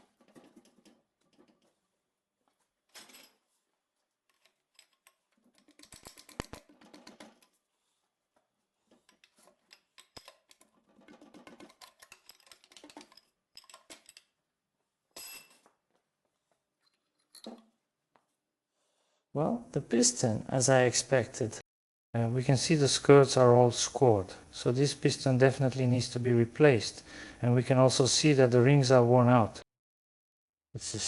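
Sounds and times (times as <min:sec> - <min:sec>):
metallic clicks and clinks of tools: 0:04.3 - 0:07.6, 0:09.0 - 0:10.6, 0:11.5 - 0:14.4.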